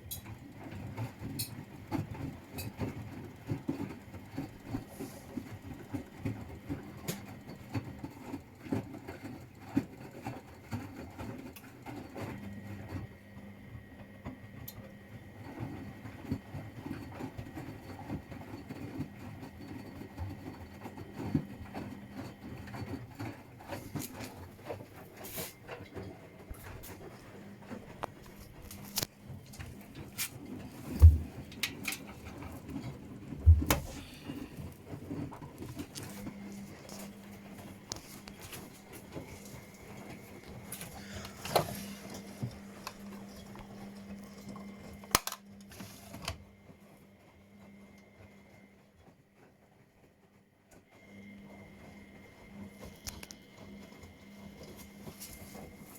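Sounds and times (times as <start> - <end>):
washing machine motor hum: 0.0 - 55.9
laundry thudding in drum: 30.9 - 31.6, 33.4 - 34.2.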